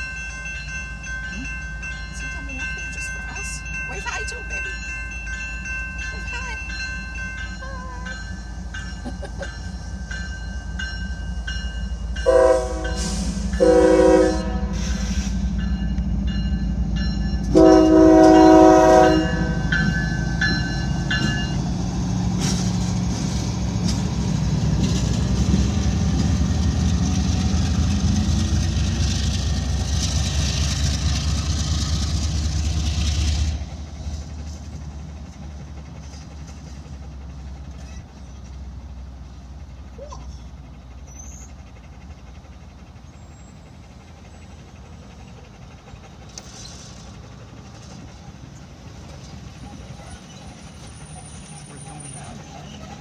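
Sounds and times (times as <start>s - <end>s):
crossing bell dinging: 0.0s - 34.6s
diesel engine rumble: 0.0s - 53.0s
train cars rattling past: 0.0s - 53.0s
locomotive horn: 12.2s - 15.2s, 17.5s - 19.8s.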